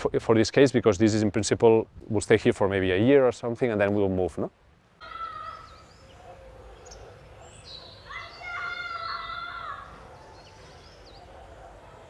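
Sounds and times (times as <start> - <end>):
birds chirping: 5.0 - 12.0
drawn-out bird call: 5.0 - 12.0.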